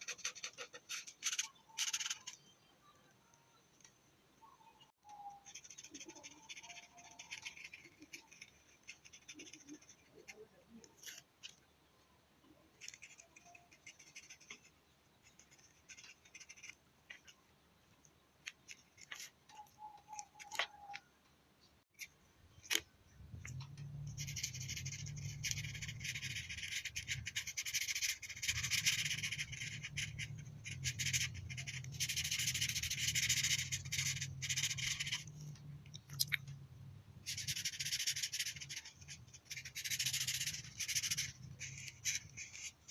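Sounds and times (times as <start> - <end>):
colouring strokes rubbing paper: 24.1 - 35.4, 37.2 - 42.9.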